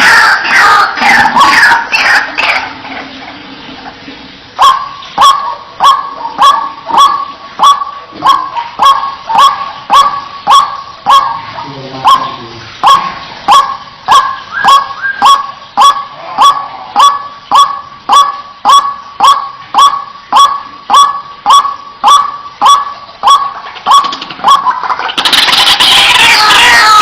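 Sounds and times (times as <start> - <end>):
many overlapping bird calls: 0.0 - 27.0
bird honking call: 4.6 - 27.0.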